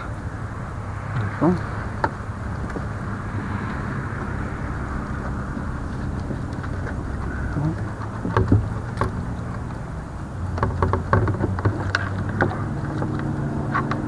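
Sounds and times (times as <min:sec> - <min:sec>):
fishing tackle clicks and knocks: 0:00.0 - 0:14.0
low motor hum: 0:00.0 - 0:14.0.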